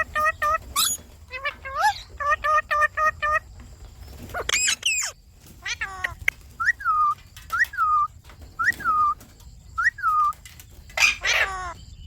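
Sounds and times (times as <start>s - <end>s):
parakeet harsh squawk: 11.0s - 11.8s.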